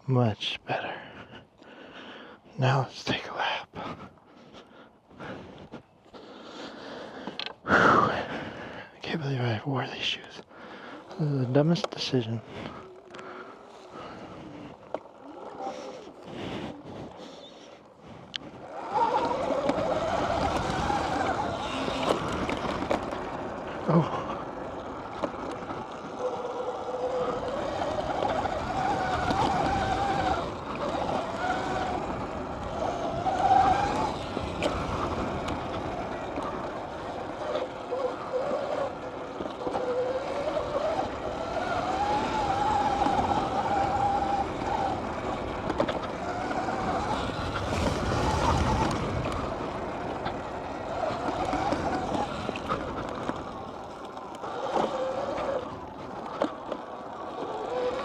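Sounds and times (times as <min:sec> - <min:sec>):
dirt bike motor revving: 0:18.3 - 0:58.0.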